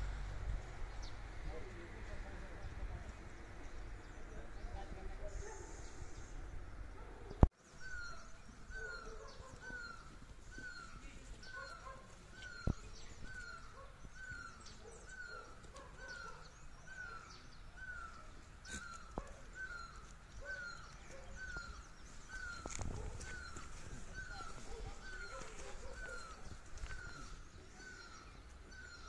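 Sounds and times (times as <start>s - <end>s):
faint high bird chirps: 7.3s - 29.0s.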